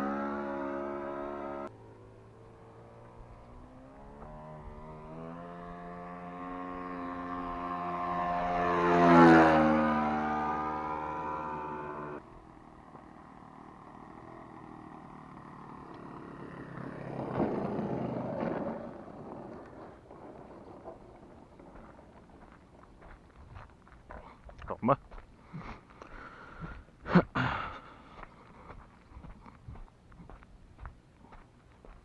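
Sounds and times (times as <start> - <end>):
model plane engine passing: 0.0 - 24.0.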